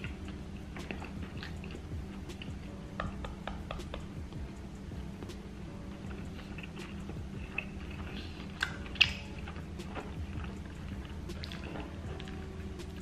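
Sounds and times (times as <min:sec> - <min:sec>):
man chewing food: 0:00.0 - 0:13.0
steady low hum: 0:00.0 - 0:13.0
wet mouth smacks: 0:06.1 - 0:13.0.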